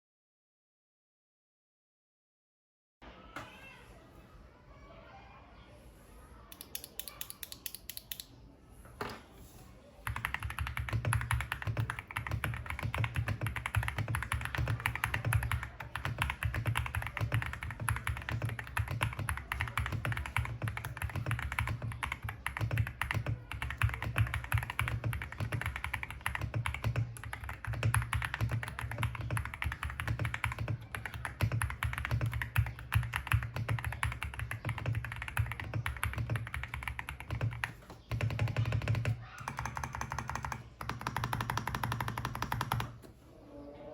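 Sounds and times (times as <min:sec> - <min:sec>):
mechanical keyboard typing: 0:10.0 - 0:43.0.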